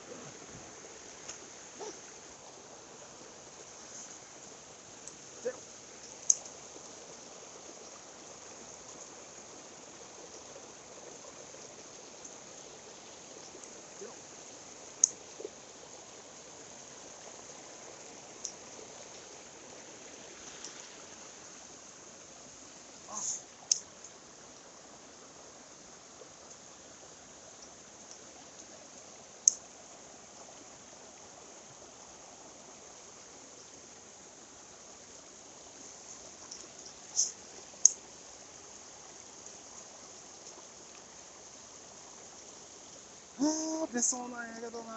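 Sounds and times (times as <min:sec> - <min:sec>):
stream water flowing: 0:00.0 - 0:44.9.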